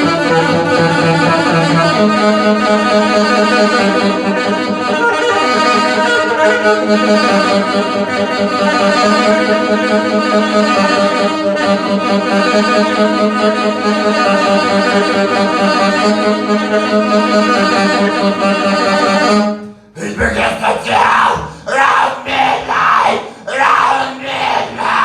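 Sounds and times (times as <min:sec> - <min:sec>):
live band playing instrumental: 0:00.0 - 0:09.8.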